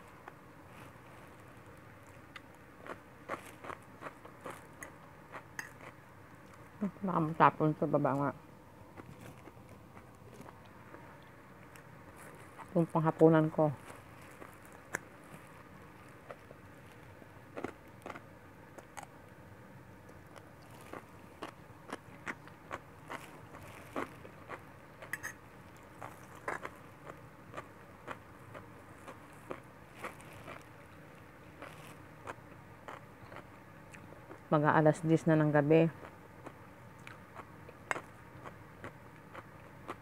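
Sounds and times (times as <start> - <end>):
person chewing noodles: 0.0 - 6.7, 8.9 - 12.8, 13.8 - 19.2, 20.0 - 34.5, 36.0 - 40.0
fork scraping a plate: 25.1 - 25.4.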